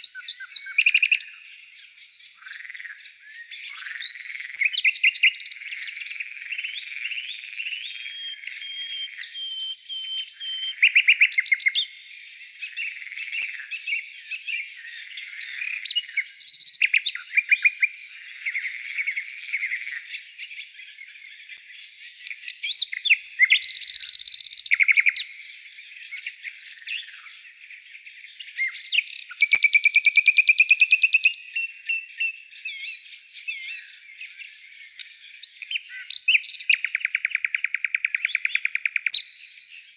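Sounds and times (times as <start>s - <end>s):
songbirds chirping and whistling: 0.0s - 39.9s
rapid bird trills: 28.6s - 32.1s, 35.6s - 39.5s.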